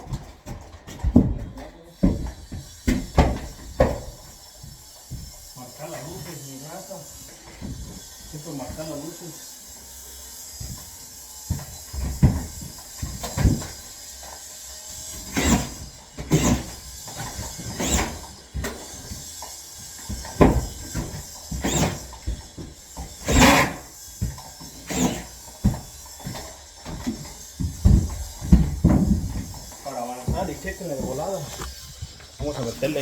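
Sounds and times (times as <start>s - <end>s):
tools scraping drywall: 0.0s - 33.0s
drywall tools knocking: 20.1s - 33.0s.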